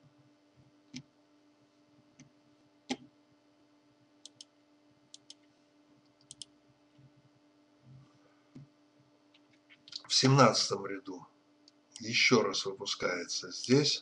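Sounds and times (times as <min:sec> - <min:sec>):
faint steady hum: 0:00.0 - 0:14.0
computer mouse clicks: 0:02.9 - 0:03.1, 0:04.2 - 0:04.5, 0:05.1 - 0:05.5, 0:06.2 - 0:07.1.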